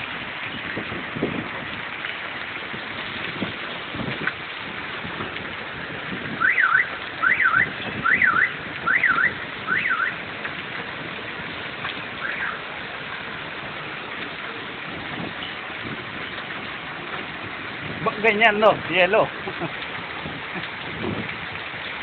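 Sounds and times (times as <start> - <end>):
hail and rain hissing: 0.0 - 22.0
car alarm whooping: 6.4 - 10.2.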